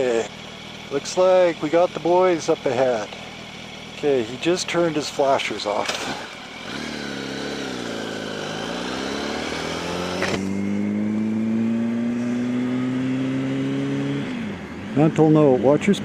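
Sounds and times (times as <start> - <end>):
motorcycle engine revving: 0.0 - 16.0
sharp click: 10.2 - 10.6.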